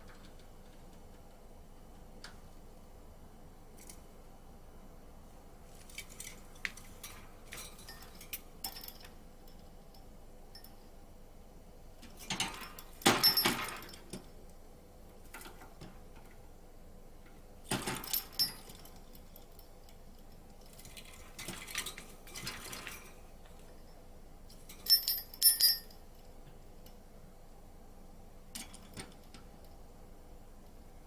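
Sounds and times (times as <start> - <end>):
clinking and rattling in birdcage: 0.0 - 1.3, 5.8 - 10.8, 12.0 - 14.3, 15.2 - 16.4, 17.7 - 26.0, 28.5 - 29.7.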